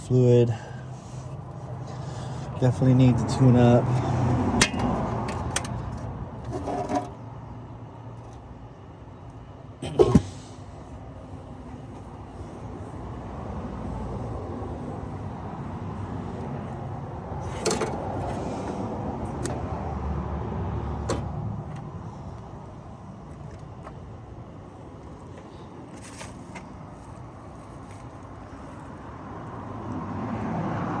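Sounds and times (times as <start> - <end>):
vehicle rushing past: 29.7 - 31.0.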